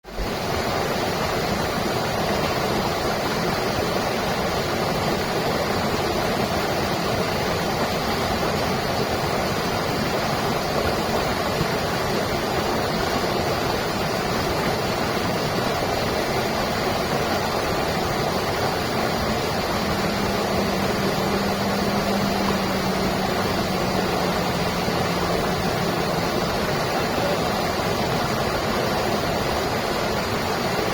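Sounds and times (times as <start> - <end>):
stream water rushing: 0.0 - 30.9.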